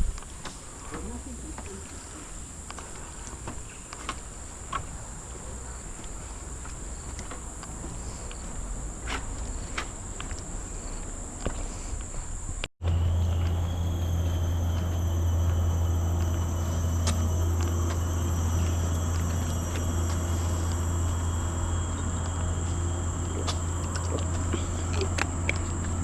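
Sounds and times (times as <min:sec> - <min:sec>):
high-pitched insect chorus: 0:00.1 - 0:26.0
steady low hum: 0:07.5 - 0:26.0.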